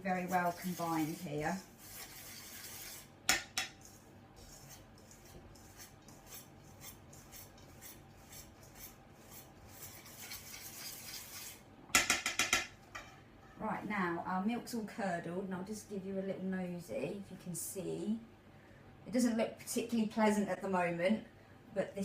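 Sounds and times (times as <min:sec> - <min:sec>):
whisk scraping in a bowl: 0:00.0 - 0:11.6.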